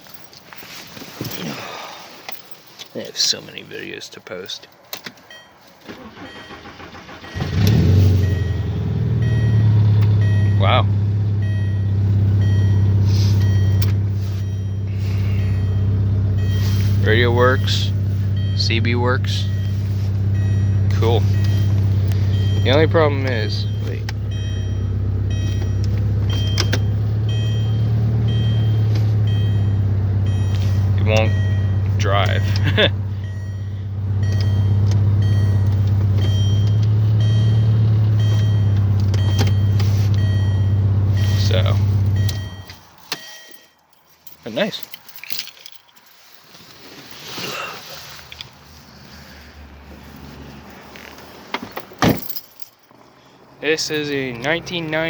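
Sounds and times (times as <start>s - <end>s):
car engine idling: 4.9s - 43.6s
faint high beeps: 5.3s - 43.8s.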